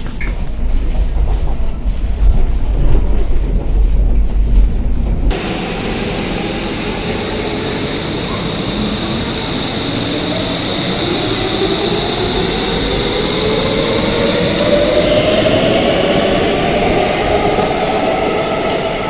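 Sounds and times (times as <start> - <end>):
metro train rumbling: 0.0 - 19.0
faint high whine: 5.3 - 19.0.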